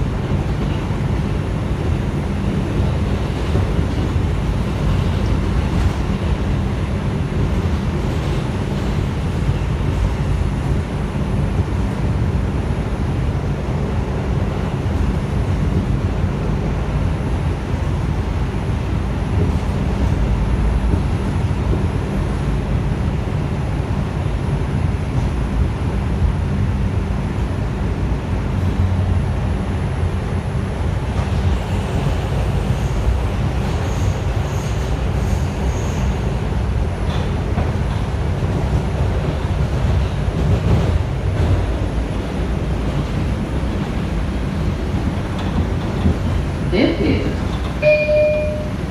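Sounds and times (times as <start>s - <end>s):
subway wheels rumbling on rails: 0.0s - 48.9s.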